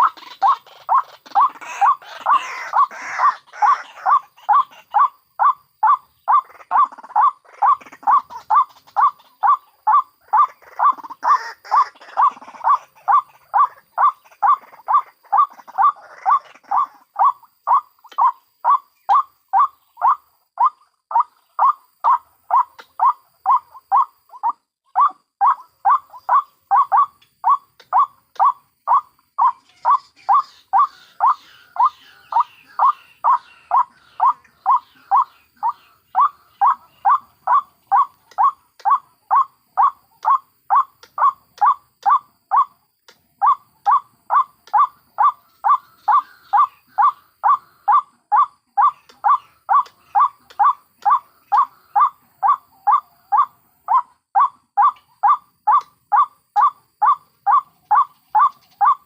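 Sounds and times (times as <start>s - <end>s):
rough waterhen chatter: 0.0s - 23.6s
waterhen calling: 0.0s - 42.8s, 43.4s - 59.0s.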